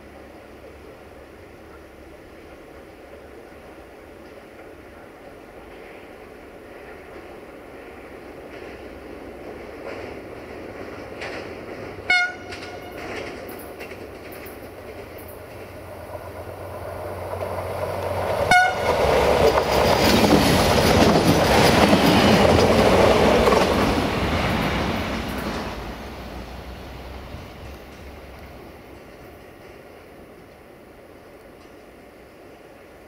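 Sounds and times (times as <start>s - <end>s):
train passing on rails: 0.0s - 33.0s
train horn toots: 12.0s - 13.2s, 18.4s - 19.2s.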